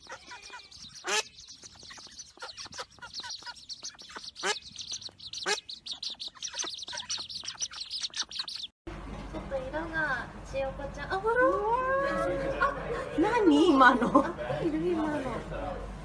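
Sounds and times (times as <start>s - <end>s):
birds chirping: 0.0s - 8.8s
lower bird calls: 0.0s - 8.8s.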